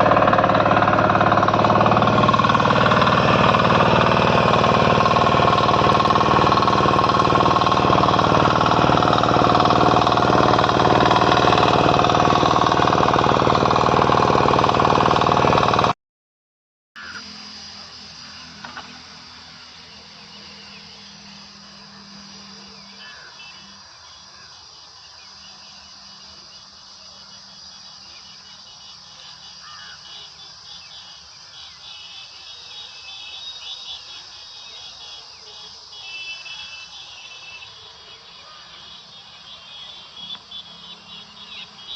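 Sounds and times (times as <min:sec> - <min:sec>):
diesel tiller engine running: 0:00.0 - 0:16.0, 0:32.2 - 0:41.9.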